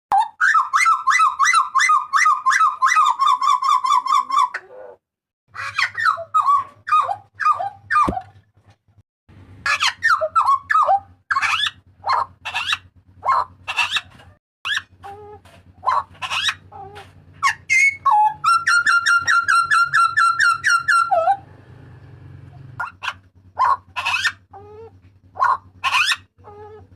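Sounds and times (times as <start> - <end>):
bird whistled calls: 17.4 - 21.4.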